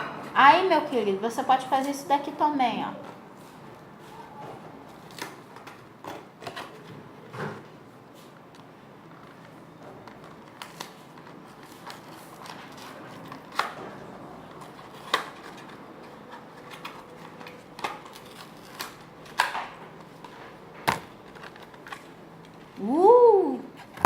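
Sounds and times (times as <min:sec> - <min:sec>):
plastic packaging crinkling: 0:09.1 - 0:20.4, 0:21.1 - 0:22.5.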